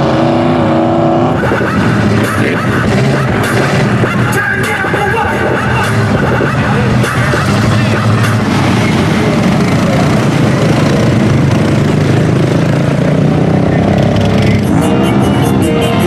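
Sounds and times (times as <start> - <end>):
truck engine running hard: 0.0 - 16.0
music: 1.4 - 9.0, 14.5 - 16.0.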